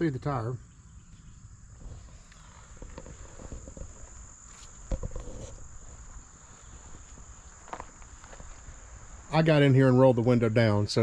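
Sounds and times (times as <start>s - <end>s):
crickets trilling: 0.0s - 11.0s
footsteps: 1.8s - 9.4s.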